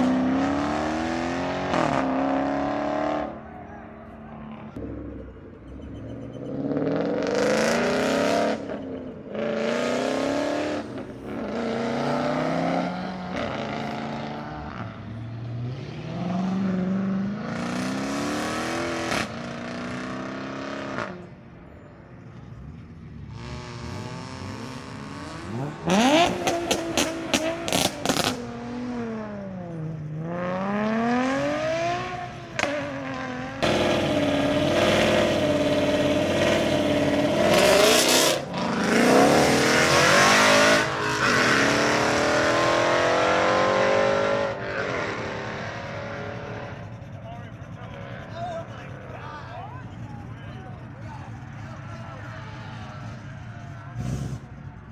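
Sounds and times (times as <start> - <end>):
car engine revving: 0.0 - 21.6, 22.3 - 54.9
sharp exhaust pops: 25.9 - 28.4.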